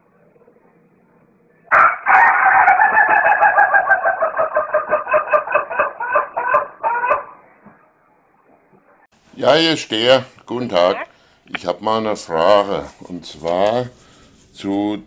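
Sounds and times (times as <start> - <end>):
chicken calling loudly: 1.7 - 7.6, 10.8 - 11.2.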